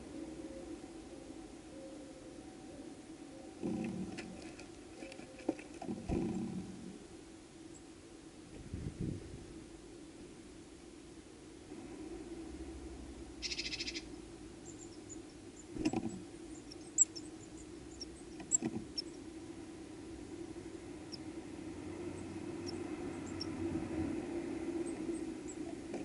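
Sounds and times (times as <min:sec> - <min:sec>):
steady low hum: 0:00.0 - 0:26.0
rapid buzzing call: 0:13.4 - 0:14.1
faint bird chirps: 0:13.4 - 0:15.7, 0:16.5 - 0:19.2.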